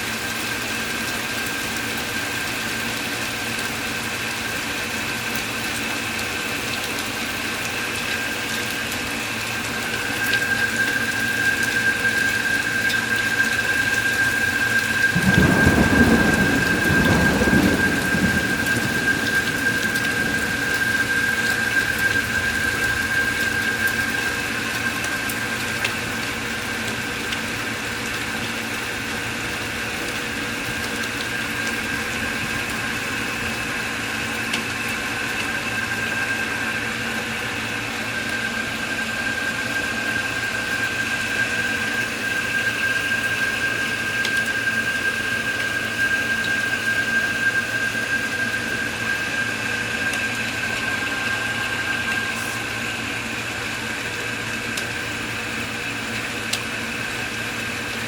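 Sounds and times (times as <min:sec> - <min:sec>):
steady rain: 0:00.0 - 0:58.0
high-pitched whine: 0:08.1 - 0:55.8
thunder rumble: 0:14.1 - 0:25.1, 0:47.9 - 0:53.4.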